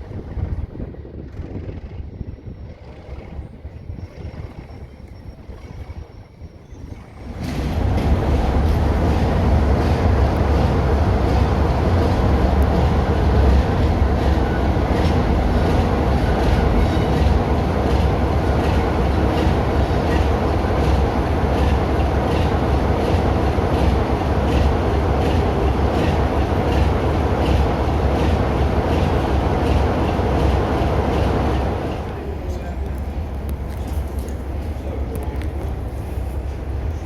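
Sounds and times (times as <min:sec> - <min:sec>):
diesel train rumble: 0:00.0 - 0:37.0.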